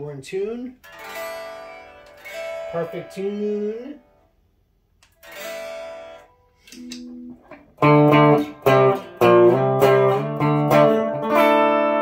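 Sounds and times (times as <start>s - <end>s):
strummed guitar chords: 0.7s - 4.4s, 5.1s - 12.0s
clean electric guitar chords: 0.8s - 4.2s, 5.2s - 12.0s.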